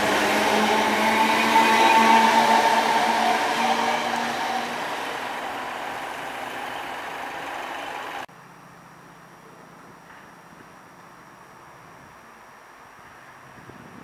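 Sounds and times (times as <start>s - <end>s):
train running past: 0.0s - 8.3s.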